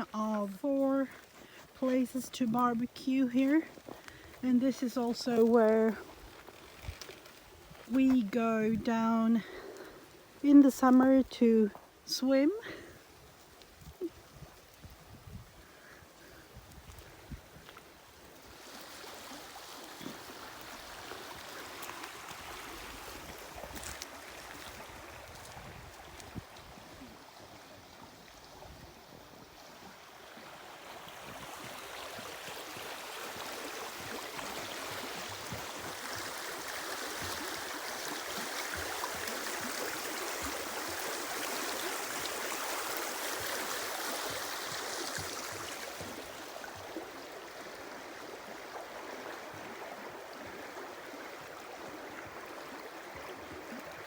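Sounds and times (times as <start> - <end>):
stream water rushing: 0.7 - 54.0.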